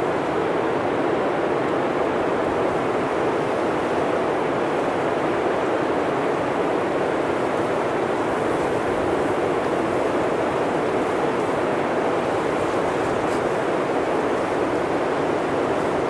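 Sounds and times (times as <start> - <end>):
blizzard wind through forest: 0.0 - 16.0.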